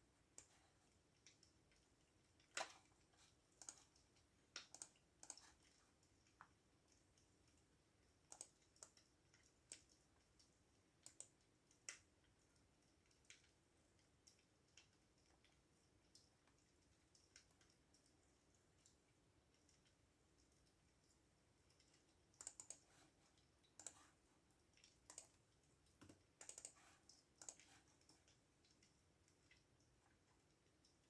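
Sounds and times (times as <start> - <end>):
computer keyboard keys clicking: 3.6 - 4.0, 4.6 - 5.7, 8.3 - 10.0, 11.0 - 12.0, 21.8 - 22.9, 23.8 - 24.1, 25.1 - 25.4, 26.0 - 28.2.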